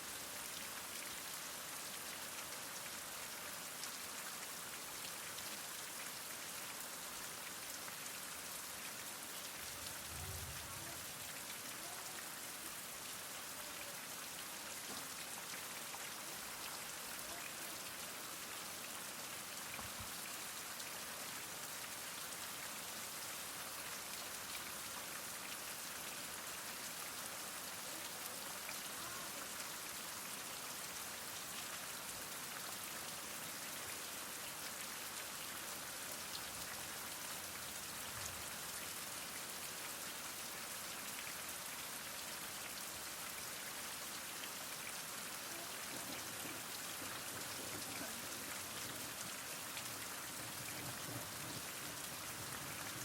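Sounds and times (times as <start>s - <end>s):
heavy rain falling: 8.6s - 20.6s, 26.0s - 33.2s, 42.6s - 53.0s.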